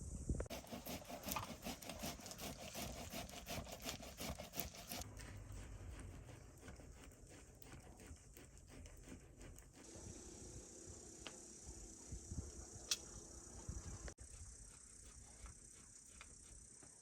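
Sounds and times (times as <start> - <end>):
rhythmic scraping on wood: 0.5 - 10.0.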